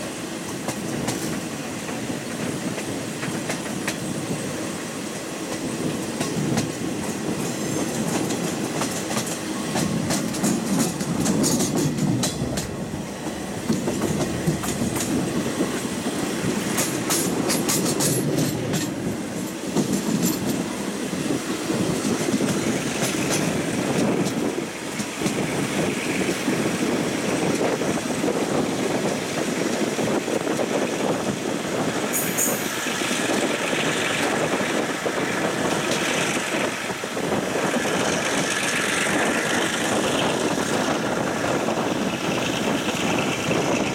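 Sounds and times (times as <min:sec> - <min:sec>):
train coach rolling on rails: 0:00.0 - 0:43.9
wheels clacking over rail joints: 0:05.2 - 0:20.8, 0:21.6 - 0:31.1.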